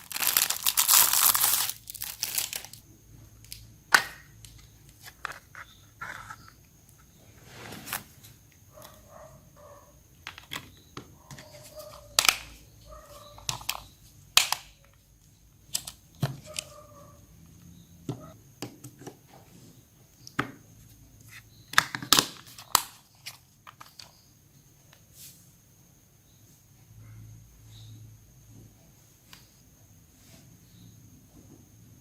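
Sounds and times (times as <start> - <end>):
plastic parts snapping: 3.4 - 5.5, 12.1 - 12.6, 13.4 - 15.0, 15.7 - 16.7, 21.7 - 24.1.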